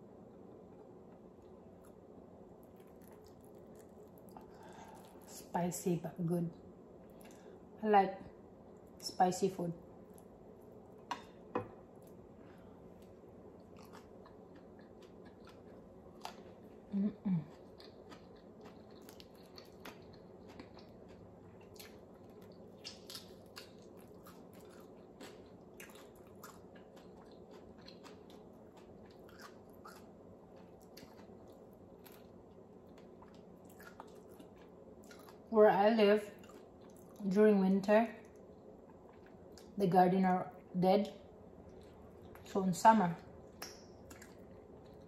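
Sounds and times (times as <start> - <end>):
chewing: 2.6 - 5.3, 13.0 - 35.5, 36.3 - 37.2, 38.2 - 39.8, 41.6 - 42.5, 43.2 - 45.0
person humming: 16.9 - 17.5.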